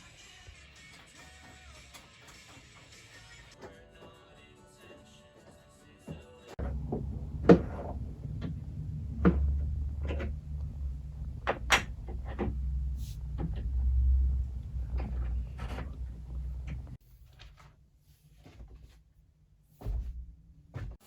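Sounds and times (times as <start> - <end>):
low steady hum: 6.6 - 17.0.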